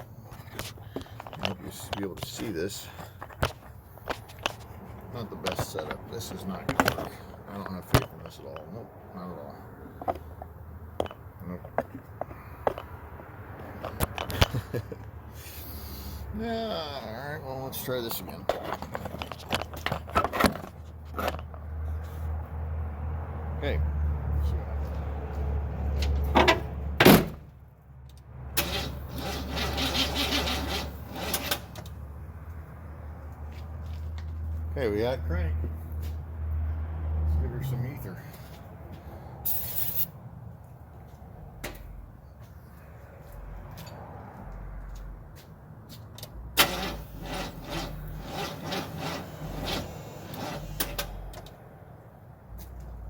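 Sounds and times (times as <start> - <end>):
starter cranking engine: 28.6 - 32.0, 46.5 - 51.4.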